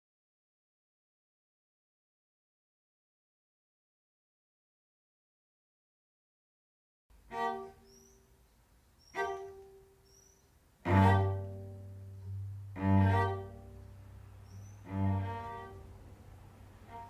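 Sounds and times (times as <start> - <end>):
cello notes: 7.1 - 8.4, 9.0 - 17.0
deep low cello note: 10.8 - 17.0.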